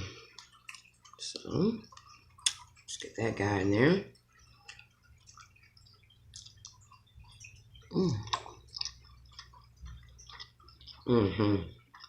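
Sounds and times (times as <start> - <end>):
close chewing: 0.2 - 3.2, 4.2 - 12.0
wet mouth clicks: 0.3 - 3.1, 4.5 - 7.1, 7.9 - 12.0.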